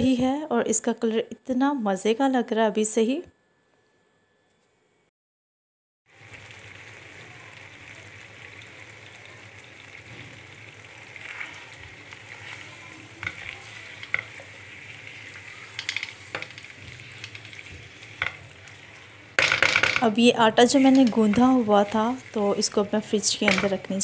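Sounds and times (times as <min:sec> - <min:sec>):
vegetables sizzling in a wok: 0:06.1 - 0:24.0
spatula scraping and knocking pan: 0:11.2 - 0:24.0.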